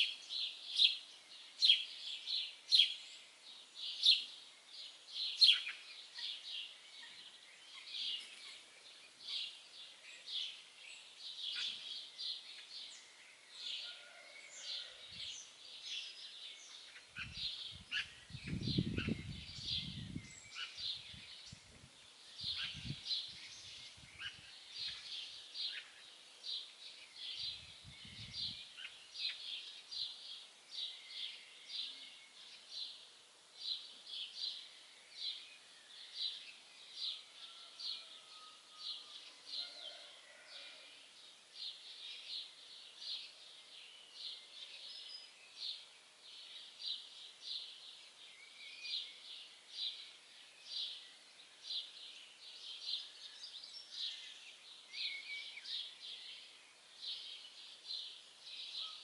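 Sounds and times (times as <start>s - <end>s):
songbird chirping: 0.0s - 59.0s.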